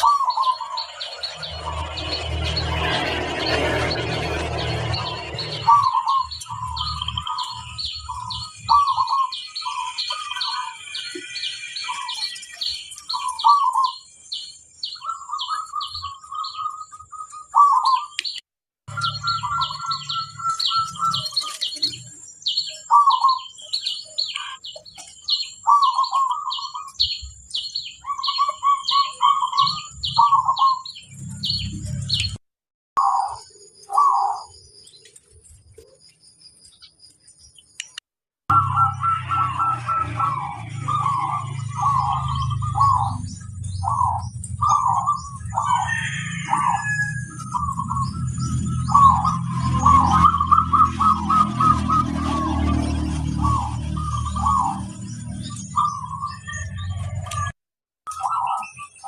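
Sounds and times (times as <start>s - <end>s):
doves cooing: 0.0s - 18.2s, 18.9s - 22.1s, 22.7s - 31.6s, 33.0s - 34.6s, 38.5s - 57.1s
small bird chirping: 0.0s - 32.4s.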